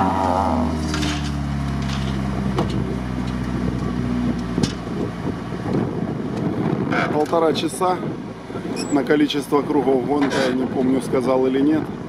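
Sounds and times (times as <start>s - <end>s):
car engine at steady revs: 0.0s - 8.8s.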